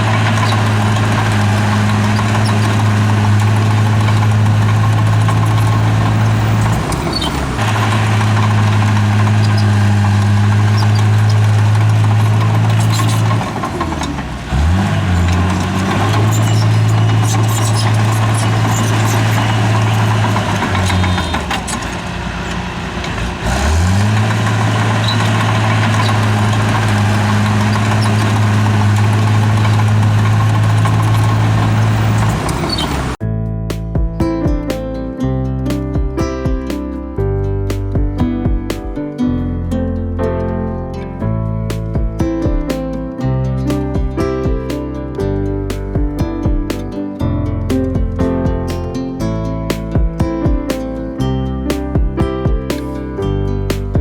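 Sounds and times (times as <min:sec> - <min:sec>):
bulldozer diesel engine running: 0:00.0 - 0:33.2
knocks: 0:41.7 - 0:42.9, 0:49.7 - 0:50.9.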